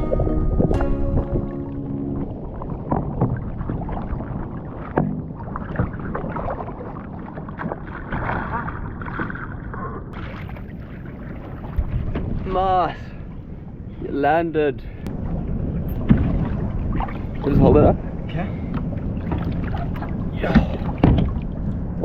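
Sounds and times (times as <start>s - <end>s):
wind on microphone: 0.0s - 7.6s
water slapping against kayak: 0.0s - 13.8s, 15.0s - 22.0s.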